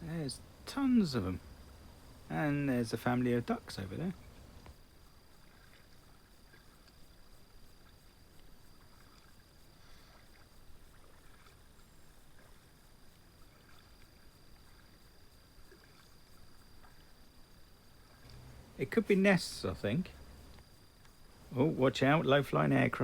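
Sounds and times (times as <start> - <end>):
paddle splashes and drips: 4.1 - 18.6.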